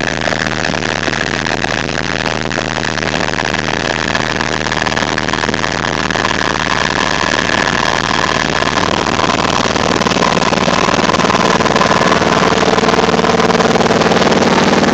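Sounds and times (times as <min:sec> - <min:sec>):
high whine: 0:00.0 - 0:14.9
helicopter rotor and turbine noise: 0:04.4 - 0:14.9.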